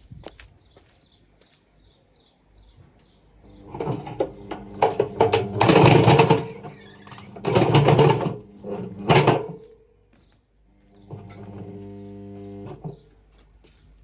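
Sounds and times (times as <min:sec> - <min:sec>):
washing machine motor hum: 0:03.4 - 0:09.7, 0:10.8 - 0:13.2
weights banging in washing machine drum: 0:03.8 - 0:08.4.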